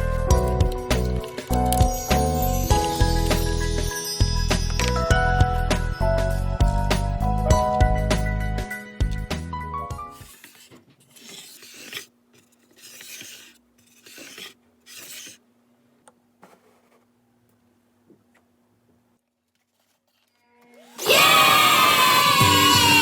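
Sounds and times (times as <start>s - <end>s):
abrasive scraping wood: 10.2s - 15.4s.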